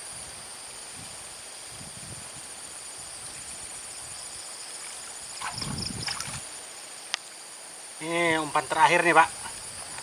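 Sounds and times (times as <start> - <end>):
high-pitched insect buzz: 0.0 - 7.4
pulsing insect trill: 0.0 - 10.0.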